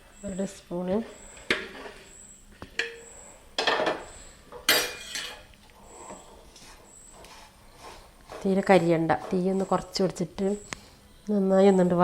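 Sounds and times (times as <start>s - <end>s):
spoon scraping pan: 4.9s - 10.7s.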